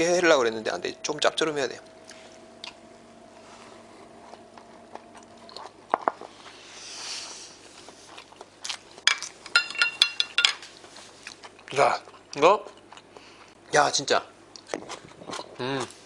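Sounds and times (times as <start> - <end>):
man chewing: 1.8 - 9.5, 10.6 - 13.6, 14.5 - 16.0.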